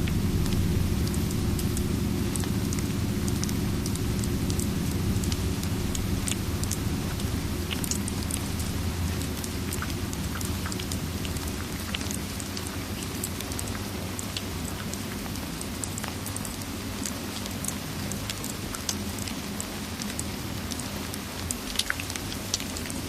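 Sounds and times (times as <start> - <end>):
fire crackling: 0.0 - 15.8
steady rain: 0.0 - 23.0.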